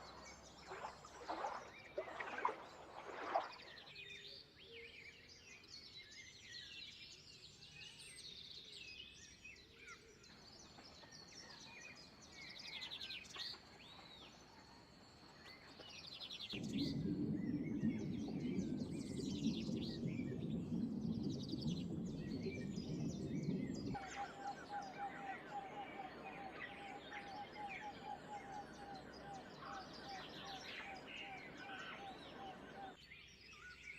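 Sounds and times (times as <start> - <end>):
birds chirping and singing: 18.2 - 33.0
repeated lower bird notes: 22.4 - 33.0.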